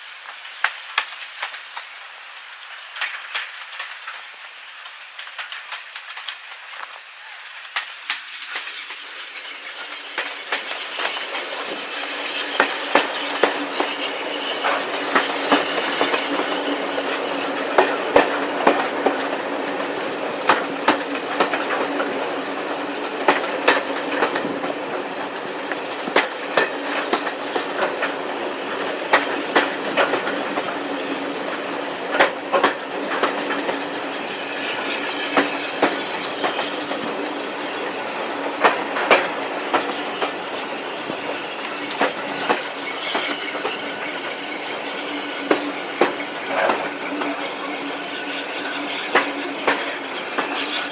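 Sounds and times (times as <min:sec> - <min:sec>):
train wheels clicking over rail joints: 0:00.0 - 0:50.9.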